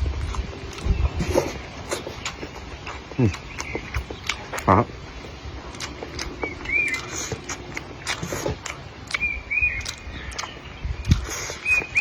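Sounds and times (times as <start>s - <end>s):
high chirping animal calls: 0.7s - 12.0s
clicks and knocks from eating: 5.8s - 12.0s.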